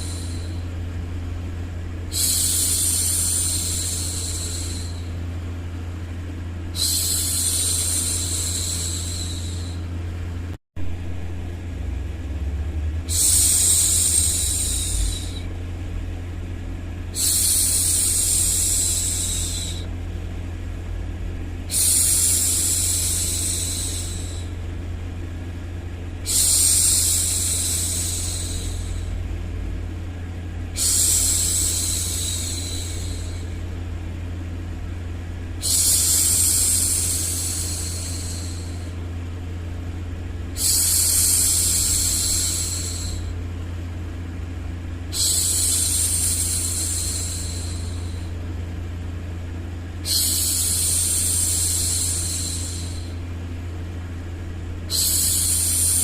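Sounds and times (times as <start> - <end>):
white noise rumble: 0.0 - 56.0
woman shushing: 2.1 - 5.1, 50.0 - 53.2, 54.9 - 56.0.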